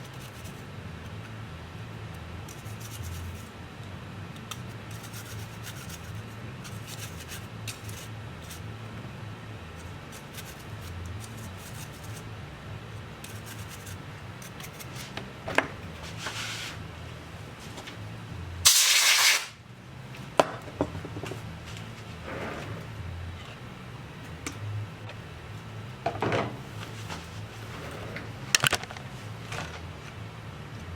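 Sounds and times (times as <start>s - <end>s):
low steady hum: 0.0s - 18.7s, 19.5s - 30.9s
compressed air hiss: 18.6s - 19.6s.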